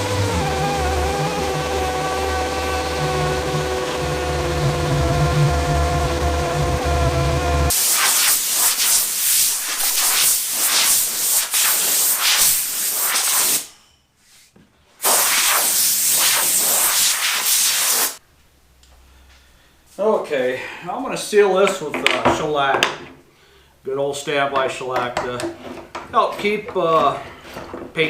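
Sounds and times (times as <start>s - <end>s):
music: 0.0s - 7.7s
spray-like hiss: 7.7s - 13.7s, 15.0s - 18.2s.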